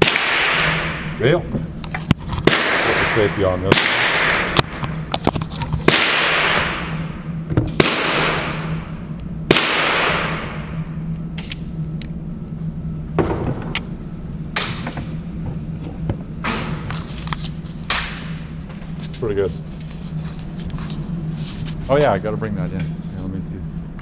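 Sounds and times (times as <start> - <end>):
handgun shots with ringing echo: 0.0 - 1.2, 2.4 - 4.6, 5.9 - 7.0, 7.8 - 8.8, 9.5 - 10.7.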